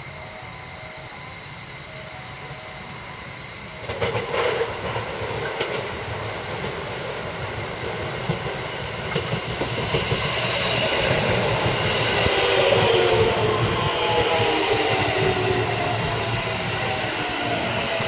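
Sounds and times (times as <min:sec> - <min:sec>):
train brake whine: 0:00.0 - 0:18.0
train wheels rumbling and clattering: 0:02.6 - 0:18.0.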